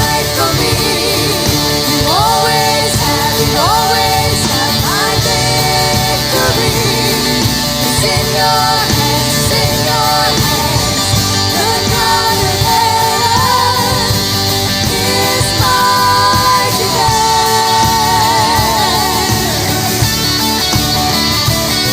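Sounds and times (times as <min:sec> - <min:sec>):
worship song with band: 0:00.0 - 0:21.9.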